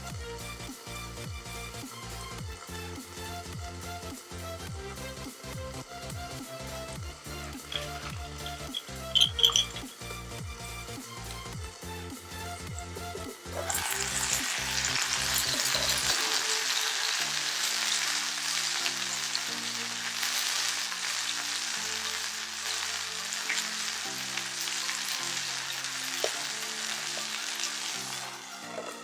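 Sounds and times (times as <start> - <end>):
meat sizzling in a frying pan: 7.1 - 10.8, 13.6 - 29.0.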